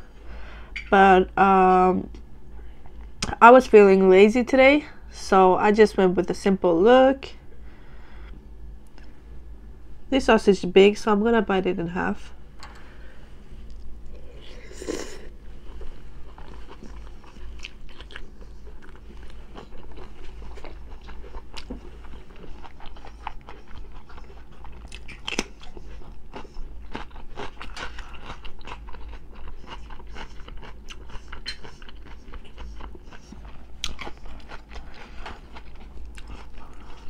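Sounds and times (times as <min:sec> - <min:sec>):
person chewing sausage: 0:13.6 - 0:37.0.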